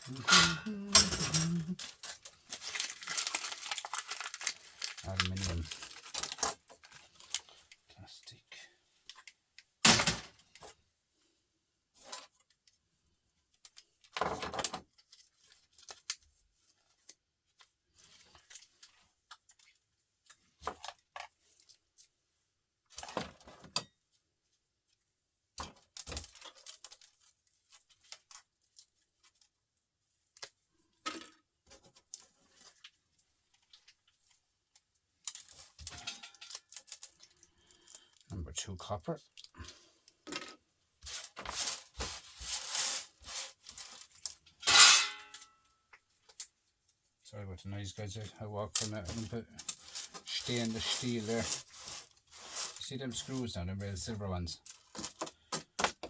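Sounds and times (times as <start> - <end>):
small parts clinking and rattling: 34.7 - 38.3.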